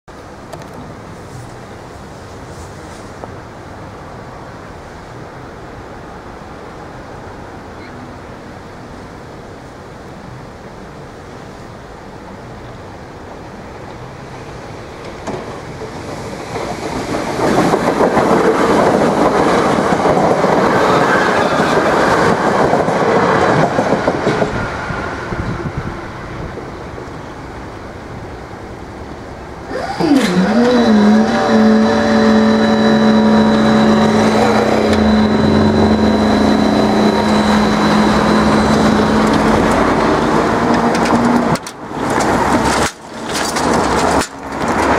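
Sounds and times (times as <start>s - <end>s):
train wheels rumbling on rail: 9.2s - 44.9s
steady humming tone: 29.7s - 40.1s.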